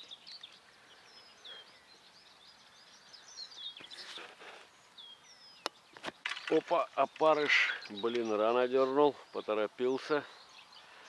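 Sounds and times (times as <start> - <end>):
small birds chirping: 0.0 - 11.0
soft rustle: 3.8 - 4.8.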